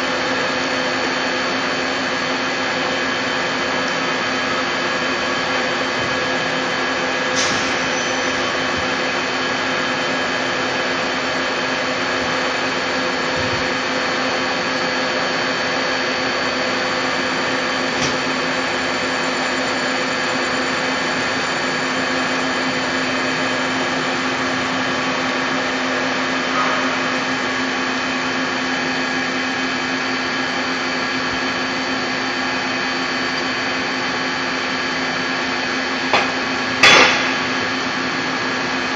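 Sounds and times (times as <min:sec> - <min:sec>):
lathe whirring hum: 0:00.0 - 0:38.9.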